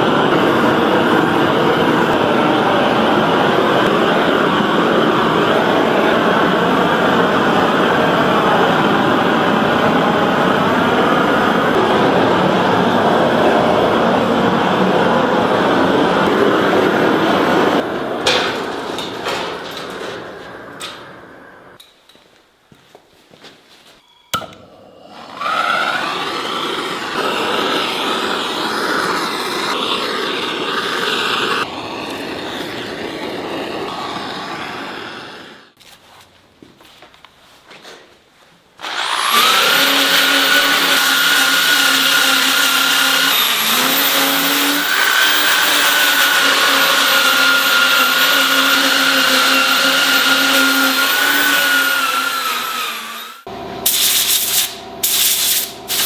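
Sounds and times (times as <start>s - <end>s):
rotary sanding tool grinding wood: 25.1s - 35.6s, 38.8s - 53.5s.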